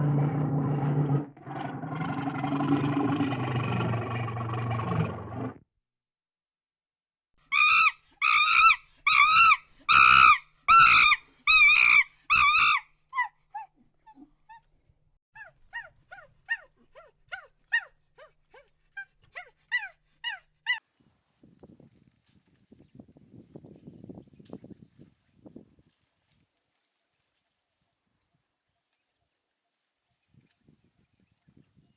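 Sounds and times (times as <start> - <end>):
animal crying high-pitched: 7.5 - 13.7.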